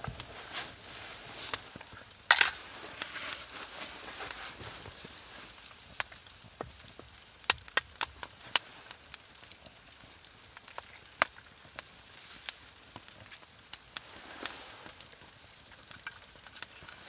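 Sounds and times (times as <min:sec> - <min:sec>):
sharp knocks and cracks: 0:06.0 - 0:08.6.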